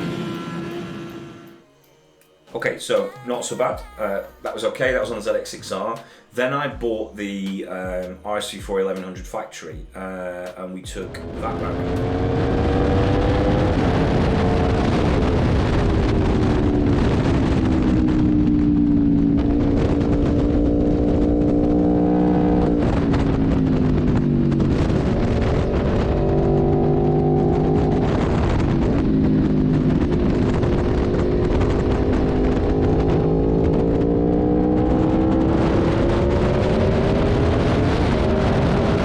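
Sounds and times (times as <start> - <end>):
wind and road noise: 0.0 - 1.5, 11.0 - 39.0
motorcycle engine revving: 0.0 - 1.6, 10.9 - 39.0.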